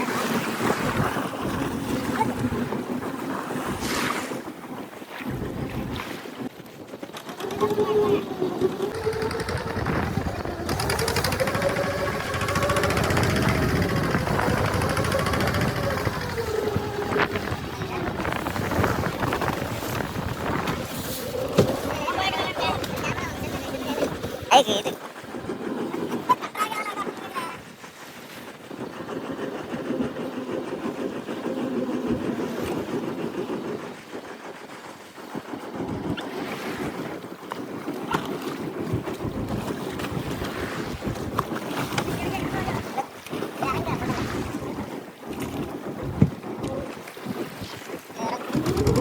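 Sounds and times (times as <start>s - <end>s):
boat engine running: 5.2s - 26.4s, 35.7s - 49.0s
wavering whine: 7.3s - 22.2s.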